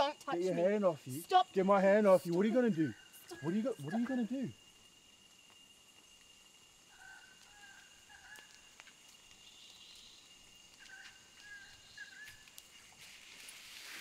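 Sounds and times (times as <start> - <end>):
bird calling: 9.4 - 12.6.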